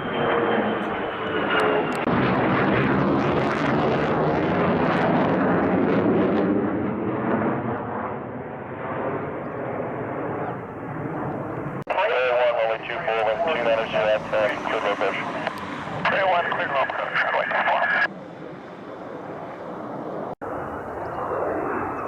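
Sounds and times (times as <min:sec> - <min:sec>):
jet engine rush and whine: 0:00.0 - 0:22.0.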